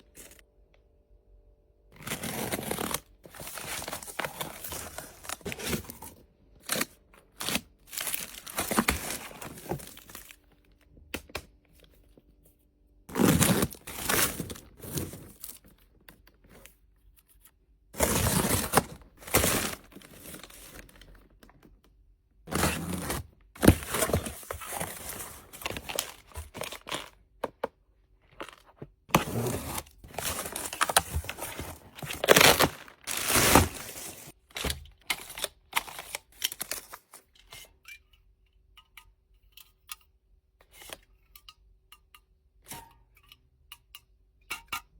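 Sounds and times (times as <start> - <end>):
packaging tearing and crinkling: 2.0 - 6.0, 6.6 - 10.4, 13.1 - 15.6, 18.0 - 21.0, 22.5 - 27.2, 29.2 - 37.2.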